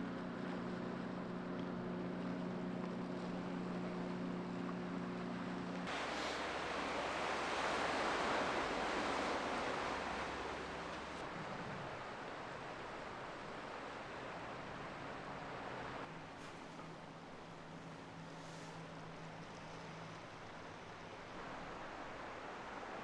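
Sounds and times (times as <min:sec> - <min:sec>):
waves washing on a shore: 0:05.8 - 0:23.0.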